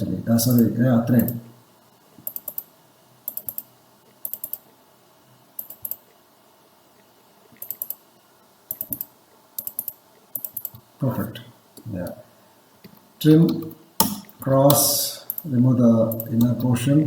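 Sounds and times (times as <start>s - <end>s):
computer keyboard typing: 2.2s - 2.7s, 3.3s - 4.6s, 5.6s - 6.0s, 7.6s - 8.0s, 8.7s - 10.8s, 15.3s - 15.5s, 16.1s - 16.7s.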